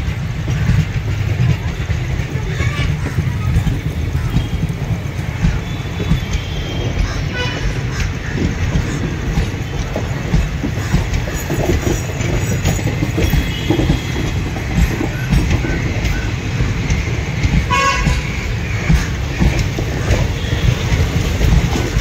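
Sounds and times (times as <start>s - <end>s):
train wheels clattering: 0.0s - 22.0s
train horn toot: 5.8s - 7.8s, 17.6s - 18.3s.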